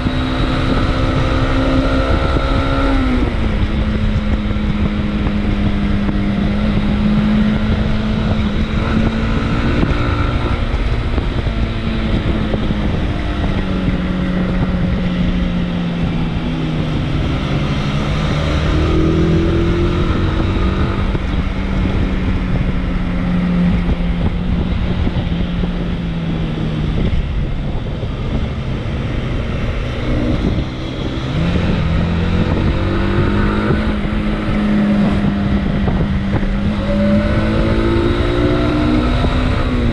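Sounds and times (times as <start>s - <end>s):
motorcycle engine revving: 0.0s - 39.9s
wind on microphone: 0.0s - 39.9s.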